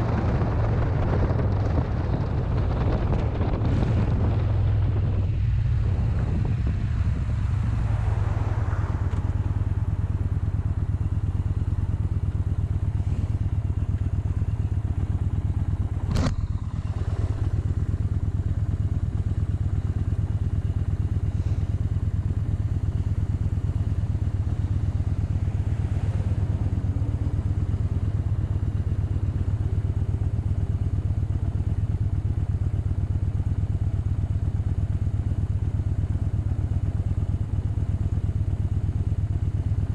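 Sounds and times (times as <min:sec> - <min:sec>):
motorcycle engine running: 0:00.0 - 0:39.9
sharp click: 0:16.1 - 0:16.4.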